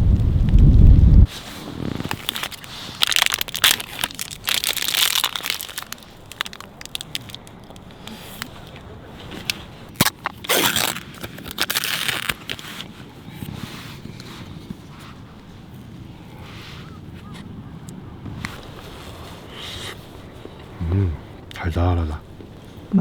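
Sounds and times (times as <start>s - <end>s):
crunching and crinkling: 0.5s - 15.2s.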